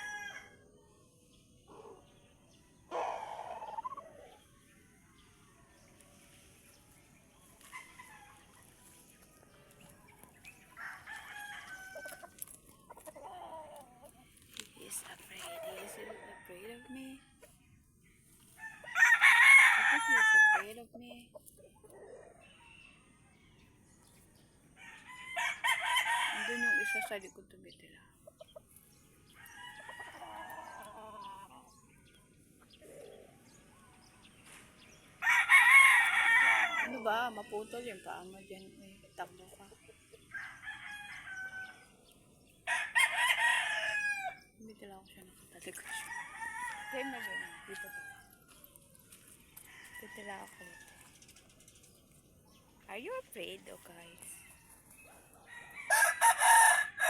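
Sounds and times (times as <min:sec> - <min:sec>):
rooster crowing: 0:00.0 - 0:00.6, 0:10.8 - 0:12.2, 0:18.6 - 0:20.7, 0:24.8 - 0:27.0, 0:35.2 - 0:37.0, 0:40.3 - 0:41.8, 0:42.7 - 0:44.4, 0:55.4 - 0:57.0.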